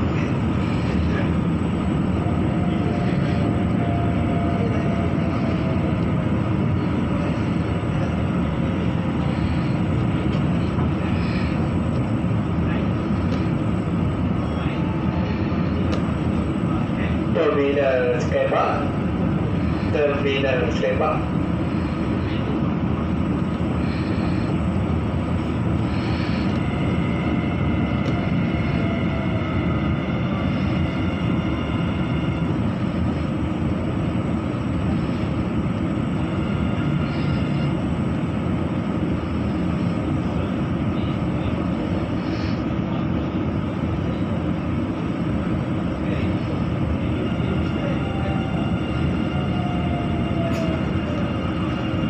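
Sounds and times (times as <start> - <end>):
electric train running rumble: 0.0 - 52.0.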